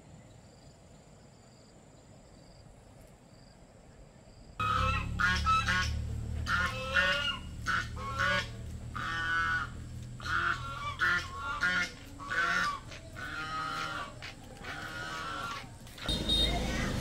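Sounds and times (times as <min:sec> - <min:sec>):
birds calling: 0:04.6 - 0:17.0
low steady rumble: 0:04.6 - 0:17.0.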